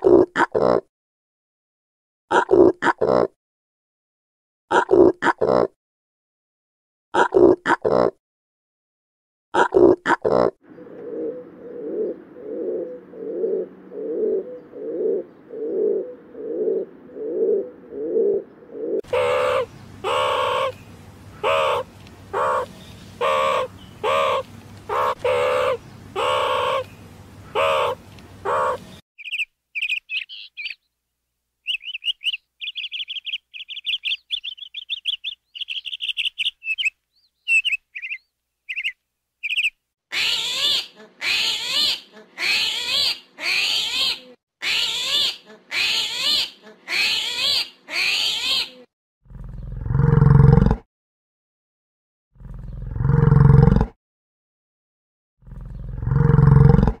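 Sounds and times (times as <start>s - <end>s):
loud calls with wavering pitch: 19.0s - 29.0s, 40.1s - 48.9s
loud harsh caws: 19.1s - 20.8s, 21.4s - 26.8s, 27.6s - 28.8s
bird chirping and twittering: 19.1s - 30.9s, 31.6s - 39.8s
low big-cat roar: 49.3s - 50.7s, 52.4s - 53.9s, 55.4s - 57.0s.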